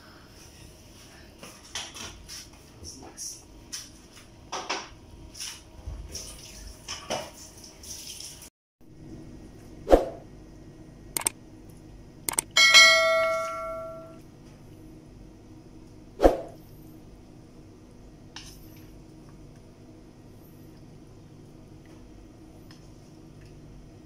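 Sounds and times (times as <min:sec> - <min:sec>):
sharp clicks: 0:11.2 - 0:11.4, 0:12.3 - 0:12.6
bell ding: 0:12.6 - 0:14.2.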